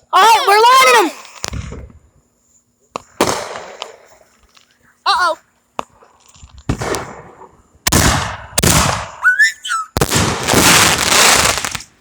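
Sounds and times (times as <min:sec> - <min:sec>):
fireworks bangs: 0:01.2 - 0:02.1, 0:03.0 - 0:04.2, 0:06.5 - 0:12.0
high firework whistle: 0:08.0 - 0:11.8.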